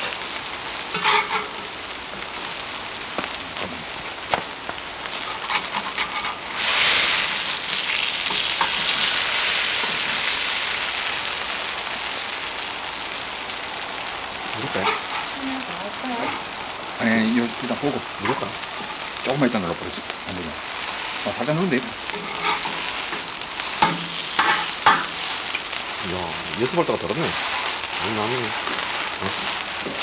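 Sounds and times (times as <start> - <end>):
hot oil spitting: 0.0 - 30.0
pancakes sizzling in oil: 0.0 - 30.0
metal turner scraping iron: 0.9 - 1.6, 22.1 - 25.5.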